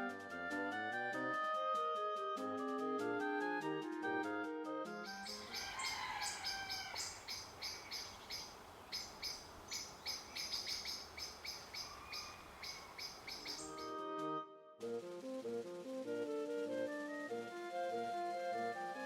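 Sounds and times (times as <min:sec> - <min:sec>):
sharp bird chirps: 0:05.0 - 0:14.0
faint background noise: 0:05.1 - 0:14.0
sliding bird calls: 0:05.1 - 0:14.0.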